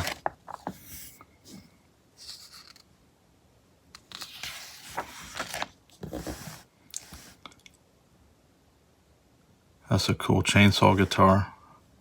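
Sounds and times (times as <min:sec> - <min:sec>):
magazine pages rustling: 0:00.0 - 0:01.0, 0:02.2 - 0:02.8, 0:04.0 - 0:07.4.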